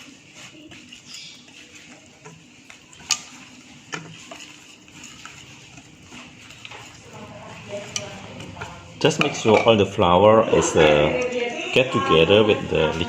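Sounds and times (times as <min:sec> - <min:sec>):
whisk clicking against bowl: 0:00.0 - 0:10.1
whisk stirring batter: 0:00.0 - 0:13.0.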